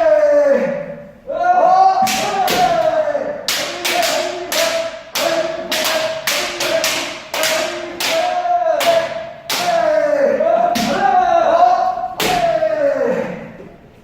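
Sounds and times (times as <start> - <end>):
people shouting: 0.0 - 13.6
bamboo swords striking: 2.0 - 2.9, 3.5 - 9.9, 12.2 - 12.6.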